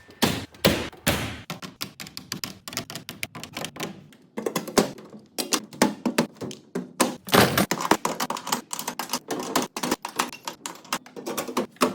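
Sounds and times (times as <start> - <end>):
hand tools clacking and knocking: 3.0 - 11.9.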